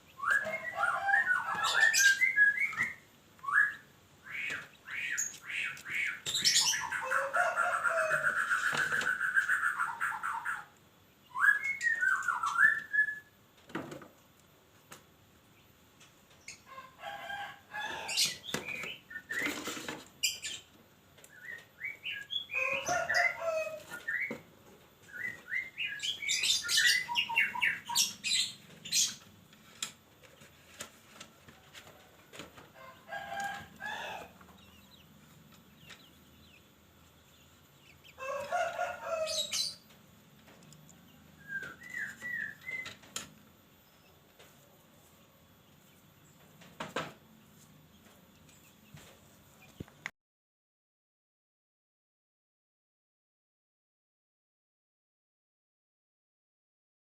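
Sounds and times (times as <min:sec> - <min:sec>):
birds calling: 0:00.0 - 0:13.2, 0:16.4 - 0:30.9, 0:32.5 - 0:44.2.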